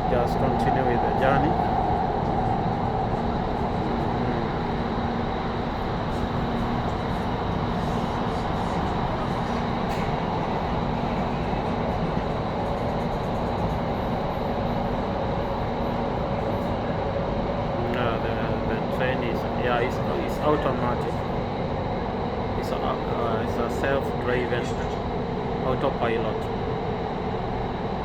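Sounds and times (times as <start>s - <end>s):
train rumbling in tunnel: 0.0s - 28.0s.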